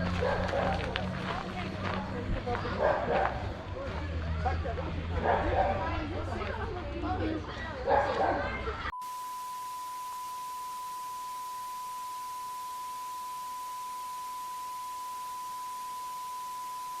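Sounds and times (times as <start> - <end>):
electronic sine tone: 8.9 - 17.0.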